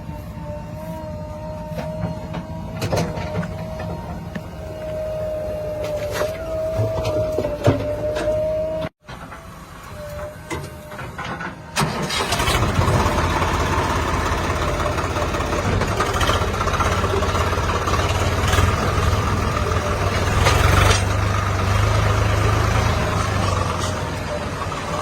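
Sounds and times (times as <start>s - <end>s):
diesel engine running: 10.8s - 25.0s.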